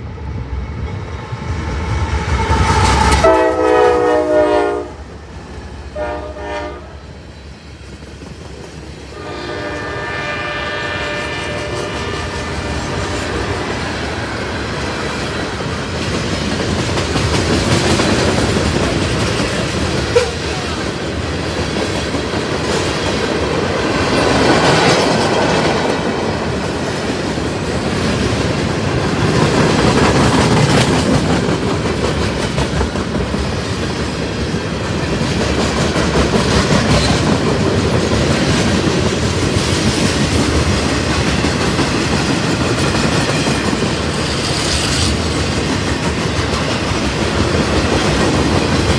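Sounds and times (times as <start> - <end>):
train wheels clattering: 11.0 - 48.9.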